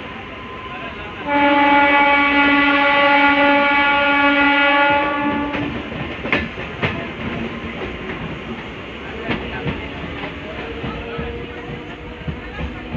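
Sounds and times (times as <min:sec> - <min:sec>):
train coaches rumbling past: 0:00.0 - 0:12.9
train horn blast: 0:01.2 - 0:05.9.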